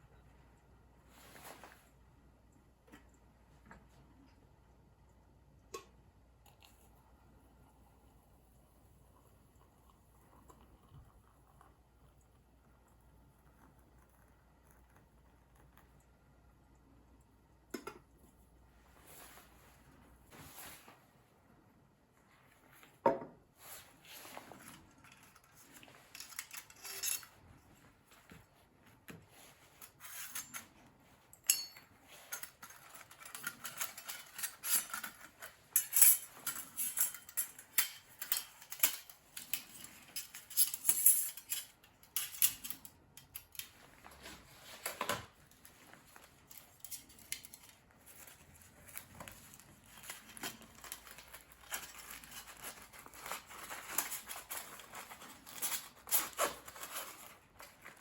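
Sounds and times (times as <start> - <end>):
metal plates clinking and scraping: 25.2 - 27.4, 31.4 - 42.8.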